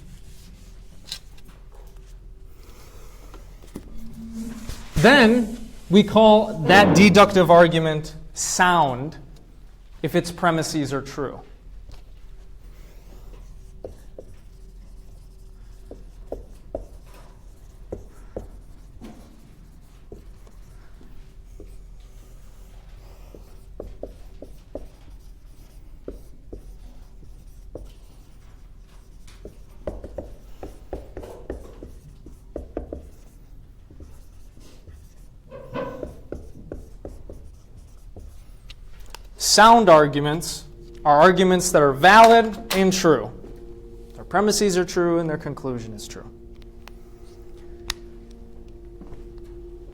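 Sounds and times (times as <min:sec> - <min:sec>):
writing on a board: 0:12.1 - 0:43.0.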